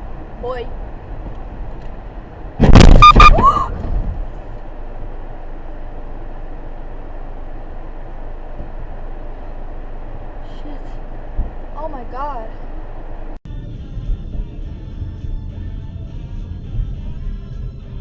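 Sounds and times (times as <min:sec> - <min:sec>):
car road and engine noise: 0:00.0 - 0:18.0
loud bang: 0:02.6 - 0:04.3
horn-like tone: 0:03.0 - 0:03.4.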